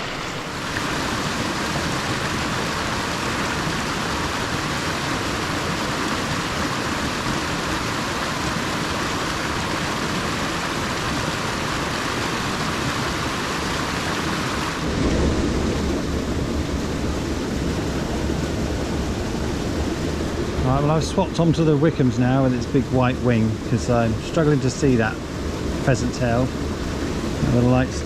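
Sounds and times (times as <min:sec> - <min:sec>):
stream rushing over stones: 0:00.0 - 0:28.0.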